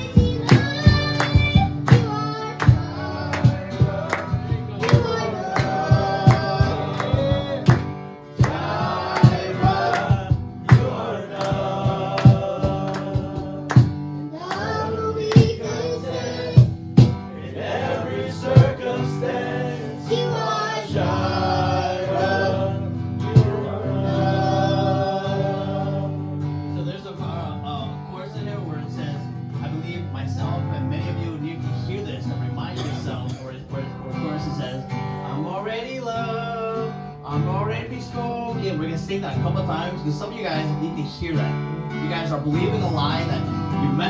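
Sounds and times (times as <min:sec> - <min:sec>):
voices singing: 0:00.0 - 0:27.6
worship band music: 0:00.0 - 0:28.7, 0:39.1 - 0:44.0.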